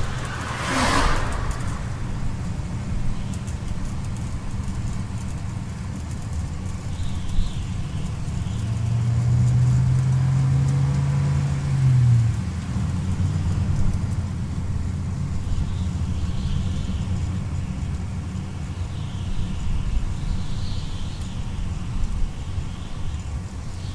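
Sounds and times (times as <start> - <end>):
strong engine drone: 0.0 - 6.8
car road and engine rumble: 0.0 - 23.9.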